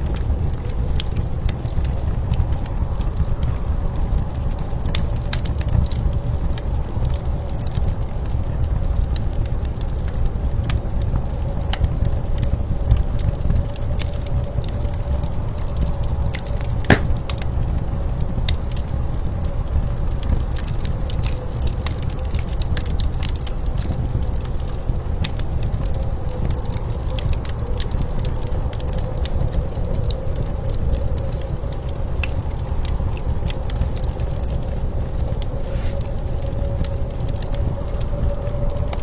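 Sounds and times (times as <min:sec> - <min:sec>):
wood fire crackling: 0:16.9 - 0:17.6, 0:35.0 - 0:38.0.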